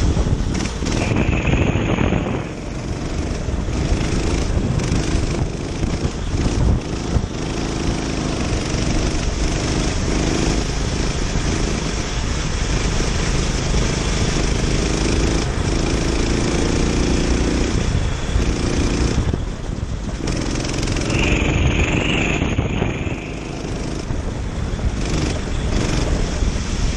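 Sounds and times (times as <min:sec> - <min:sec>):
kart engine running: 0:00.0 - 0:26.9
wind noise on microphone: 0:00.0 - 0:26.9
short high-pitched tone: 0:21.0 - 0:23.6.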